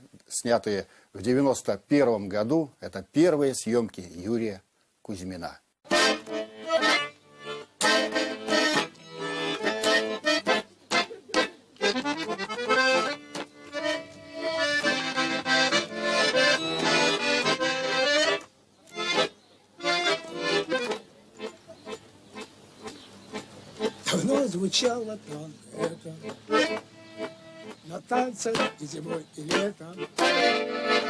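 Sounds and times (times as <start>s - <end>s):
button accordion playing: 5.9s - 31.0s.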